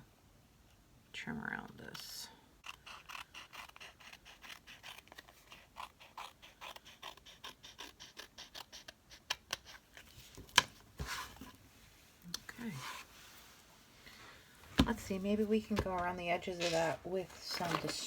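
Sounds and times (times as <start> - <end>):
scissors snipping paper: 2.6 - 10.7
paper rustling: 14.7 - 18.0.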